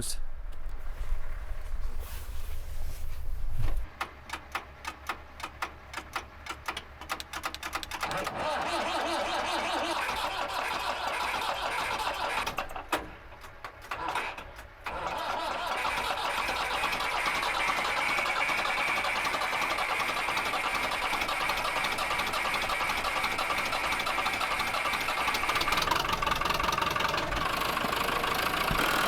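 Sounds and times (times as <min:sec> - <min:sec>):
deep engine rumble: 0:00.0 - 0:03.9
tractor engine running: 0:00.0 - 0:29.0
tractor engine cranking: 0:03.7 - 0:29.0.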